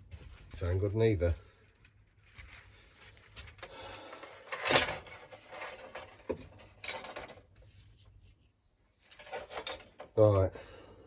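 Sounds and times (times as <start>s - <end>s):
metal parts clattering: 0.5s - 7.5s, 9.1s - 10.2s
metal parts scraping: 1.6s - 7.5s, 9.1s - 10.2s.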